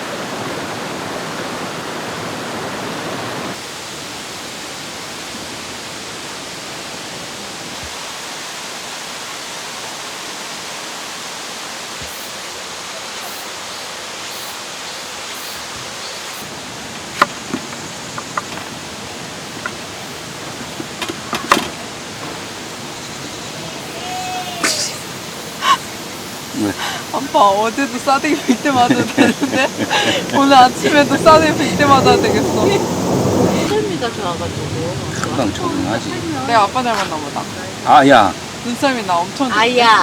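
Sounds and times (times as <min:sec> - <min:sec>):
stream flowing over rocks: 0:00.0 - 0:40.0.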